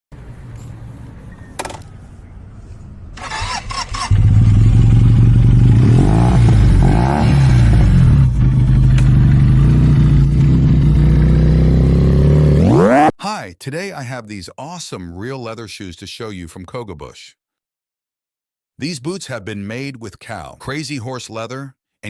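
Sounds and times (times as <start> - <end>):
motorcycle engine starting and idling: 1.4 - 2.3, 3.2 - 6.8.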